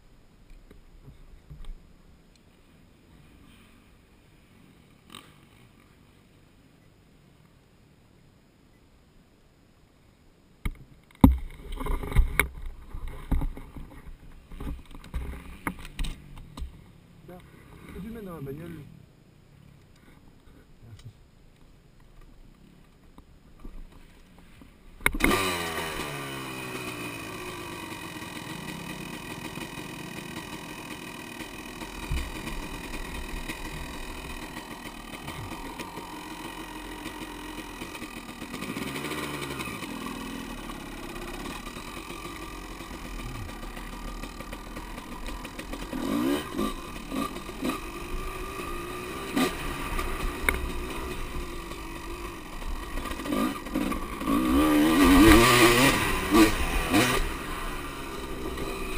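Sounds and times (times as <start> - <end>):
engine revving blips: 25.1 - 58.9
engine starting and idling: 25.1 - 58.9.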